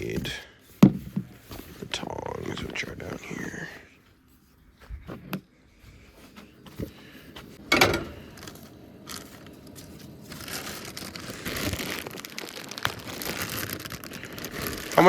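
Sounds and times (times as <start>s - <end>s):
cooking gear clatter: 7.6s - 8.7s
clicks and crinkling: 7.9s - 15.0s.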